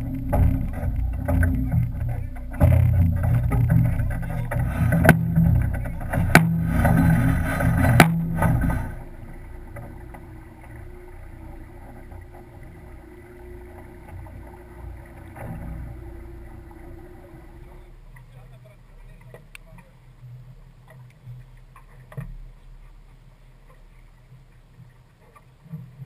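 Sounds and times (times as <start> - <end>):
sharp knocks: 0.0 - 9.2
rushing wind and water: 0.0 - 26.0.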